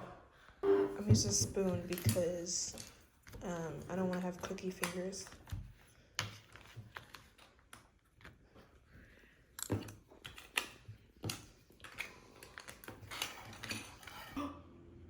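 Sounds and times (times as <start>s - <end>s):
objects clicking and clattering: 9.6s - 14.4s.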